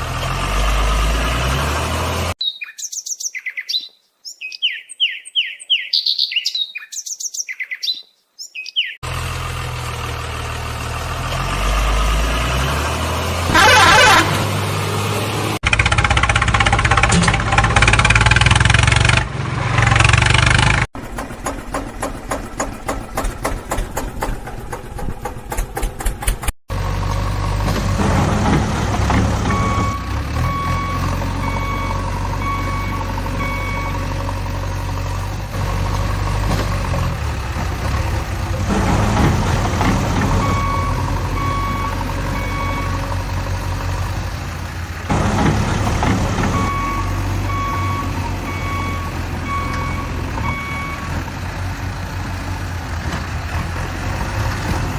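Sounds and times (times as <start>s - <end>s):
heavy vehicle engine running: 0.0s - 2.4s, 9.0s - 54.9s
rapid rhythmic engine clatter: 20.6s - 26.6s
reversing alarm beeping: 29.2s - 34.2s, 40.2s - 43.2s, 46.4s - 51.2s.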